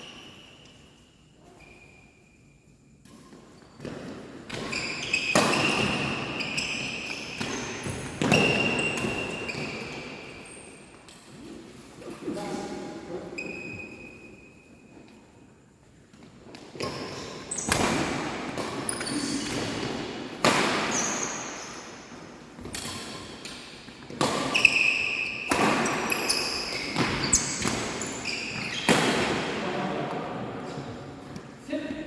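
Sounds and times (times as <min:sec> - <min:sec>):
rackets hitting shuttlecock: 0:03.8 - 0:09.9, 0:16.6 - 0:21.8, 0:22.6 - 0:29.6.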